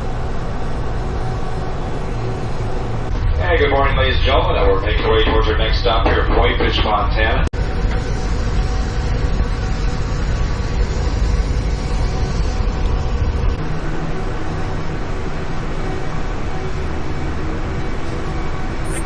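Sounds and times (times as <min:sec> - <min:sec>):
train rumble and rail noise: 0:00.0 - 0:19.0
faint steady tones: 0:07.5 - 0:19.0.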